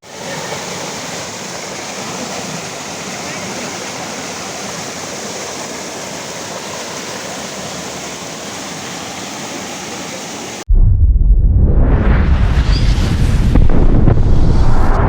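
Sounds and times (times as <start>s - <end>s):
waterfall rushing: 0.0s - 10.7s
loud low rumble: 10.7s - 15.0s.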